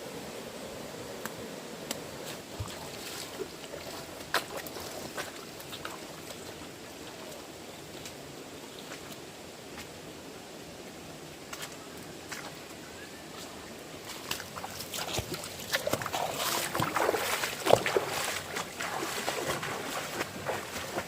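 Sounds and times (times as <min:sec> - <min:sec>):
rushing stream water: 0:00.0 - 0:21.0
splashes and clicks: 0:14.1 - 0:21.0.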